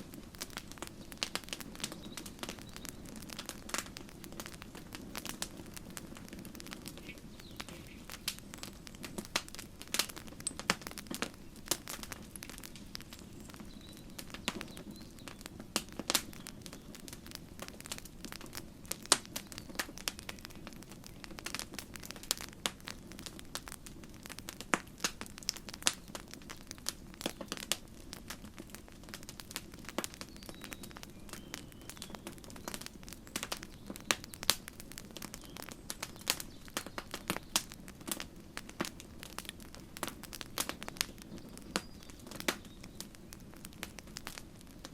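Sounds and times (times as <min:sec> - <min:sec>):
low rush of flame: 0:00.0 - 0:30.3
campfire crackling and popping: 0:00.0 - 0:44.9.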